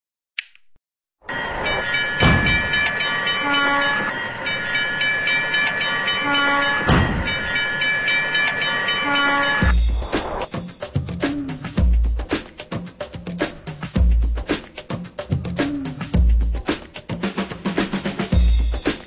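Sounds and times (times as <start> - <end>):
crossing bell ringing: 1.2 - 9.8
heavy knocks: 2.2 - 2.9, 6.8 - 7.5
train horn notes: 3.3 - 4.2, 6.2 - 6.9, 9.0 - 9.7
music with bass drum: 9.6 - 19.0.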